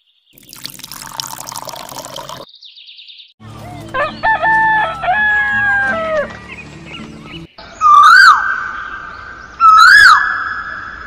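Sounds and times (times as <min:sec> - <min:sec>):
water pouring from metal pail: 0:00.4 - 0:02.5
background music: 0:03.4 - 0:07.6
rooster crowing: 0:03.7 - 0:06.3.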